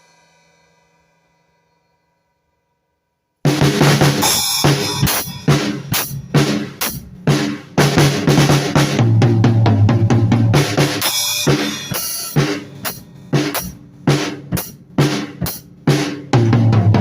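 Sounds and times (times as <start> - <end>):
drum kit played loudly: 3.4 - 17.0.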